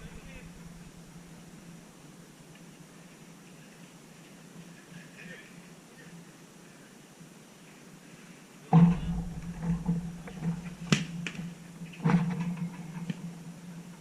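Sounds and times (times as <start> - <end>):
sudden low rumble: 0.0 - 1.9, 8.8 - 10.9
steady hum: 0.0 - 3.0, 8.8 - 12.1
sharp knocks: 8.8 - 13.2.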